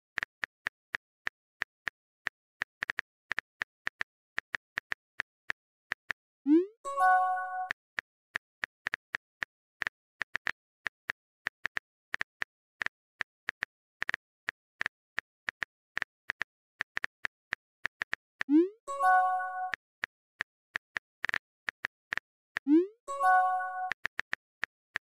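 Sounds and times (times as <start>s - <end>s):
rising pop and chime: 22.7s - 23.9s.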